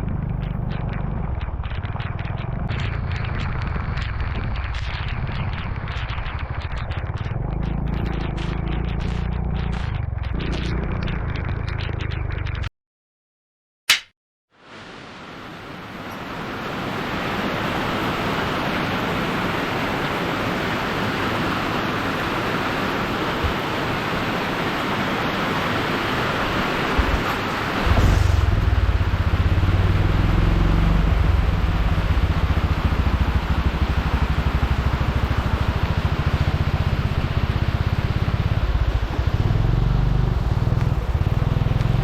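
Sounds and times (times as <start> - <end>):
low pulsing engine rumble: 0.0 - 12.7, 26.9 - 42.0
heavy rain hissing: 14.6 - 42.0.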